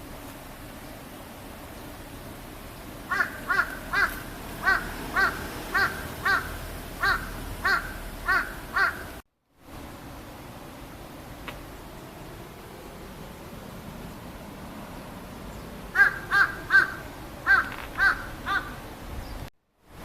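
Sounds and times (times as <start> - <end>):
outdoor background noise: 0.0 - 20.0
bird calling: 2.8 - 9.2, 15.0 - 19.5.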